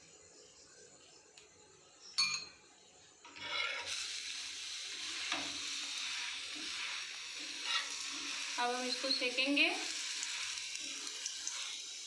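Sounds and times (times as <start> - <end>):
oil sizzling on a pan: 3.2 - 12.0.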